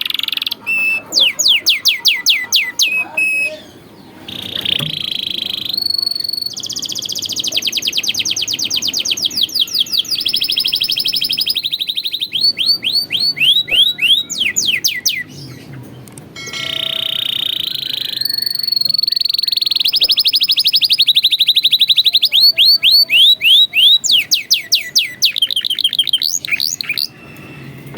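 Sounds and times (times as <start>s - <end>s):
canary singing trills: 0.0s - 27.9s.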